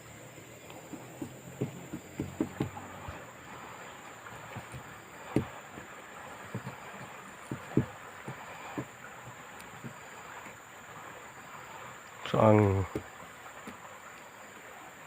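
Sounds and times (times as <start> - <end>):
dull knocks and taps: 0.6 - 10.6, 12.8 - 13.8.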